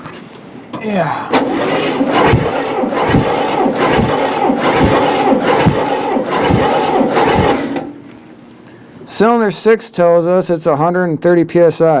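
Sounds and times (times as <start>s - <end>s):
engine cranking by starter: 1.3s - 8.0s.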